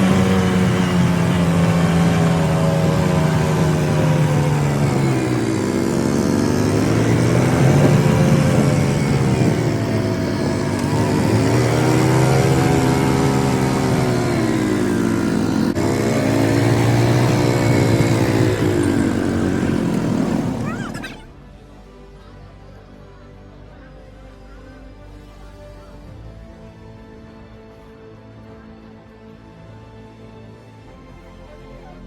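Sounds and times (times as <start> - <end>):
vehicle engine revving: 0.0 - 21.5.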